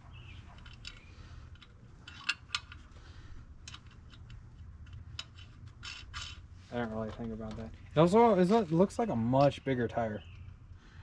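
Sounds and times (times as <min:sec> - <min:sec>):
low steady hum: 0:00.0 - 0:11.0
clicks of wheel hardware: 0:00.5 - 0:07.8.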